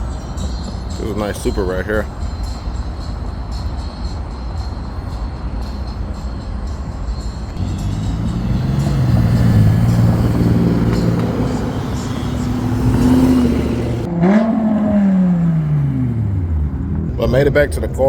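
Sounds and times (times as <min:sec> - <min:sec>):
car engine revving: 0:07.6 - 0:17.3.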